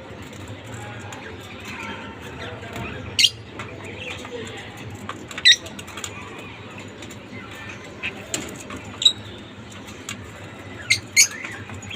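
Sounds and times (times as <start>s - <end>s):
lovebirds chirping: 5.3s - 11.9s.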